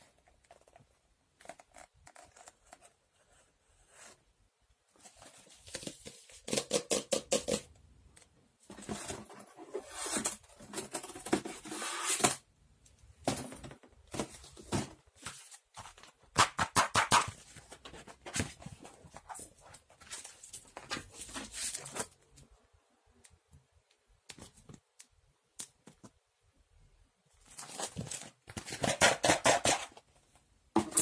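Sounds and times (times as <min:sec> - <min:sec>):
small objects rustling and scraping: 0:17.4 - 0:22.6.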